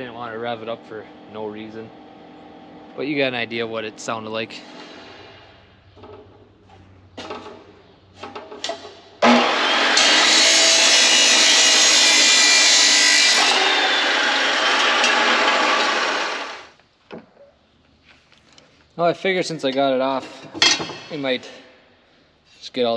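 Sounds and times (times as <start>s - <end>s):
power tool running on metal: 9.2s - 16.7s.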